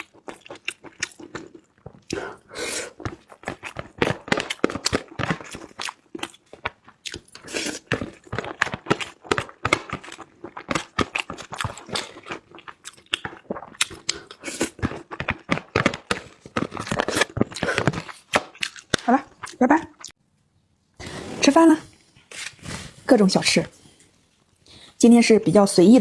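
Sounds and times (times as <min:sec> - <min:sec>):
person chewing crunchy food: 0:00.0 - 0:20.2.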